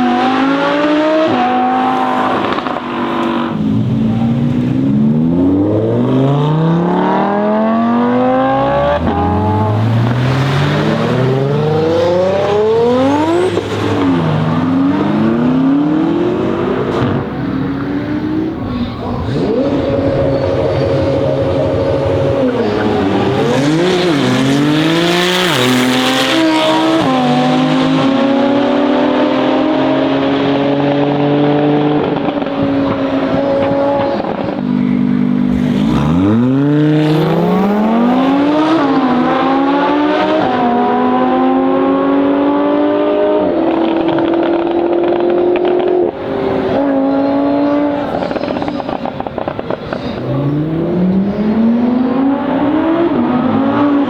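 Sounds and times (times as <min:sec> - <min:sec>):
car engine accelerating hard: 0:00.0 - 0:54.0
exhaust crackles: 0:29.9 - 0:39.4, 0:43.4 - 0:54.0.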